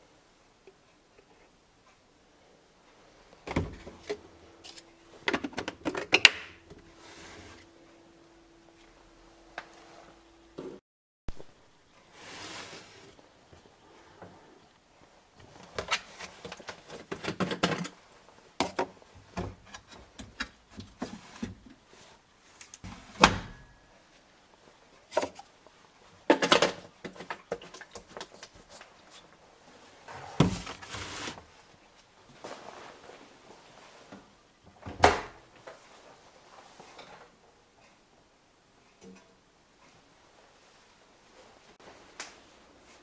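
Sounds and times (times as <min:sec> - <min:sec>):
rustling: 0:27.1 - 0:34.4.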